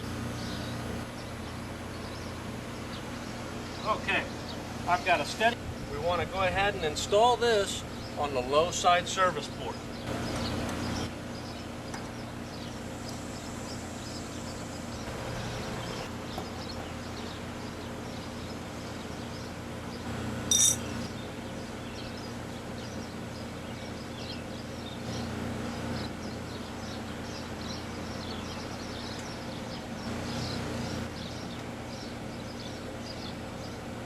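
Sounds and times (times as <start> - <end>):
heat pump humming: 0.0 - 34.0
high ringing clink: 20.5 - 21.0.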